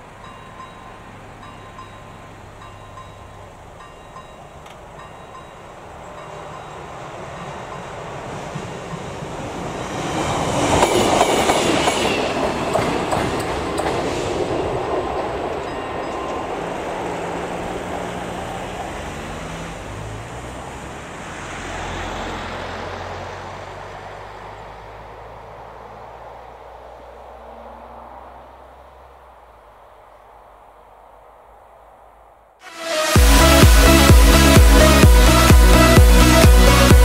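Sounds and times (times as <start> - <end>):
railcar wheels clattering over rails: 0.0 - 20.1
car engines pulling away: 0.0 - 37.0.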